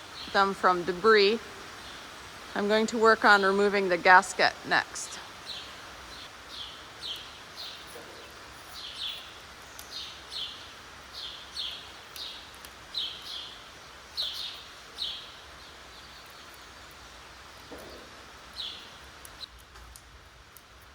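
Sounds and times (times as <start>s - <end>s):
faint background hiss: 0.0s - 20.9s
small bird chirping: 5.4s - 19.6s.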